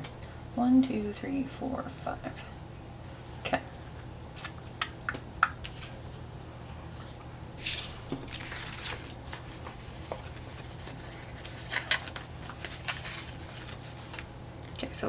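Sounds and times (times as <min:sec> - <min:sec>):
low heating hum: 0:00.0 - 0:15.0
paper rustling and peeling: 0:06.9 - 0:14.3.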